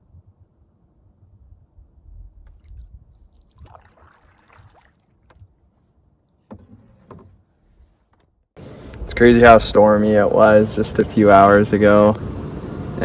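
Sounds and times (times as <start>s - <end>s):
paddle strokes swishing through water: 2.4s - 8.5s
low rumble: 8.6s - 11.3s.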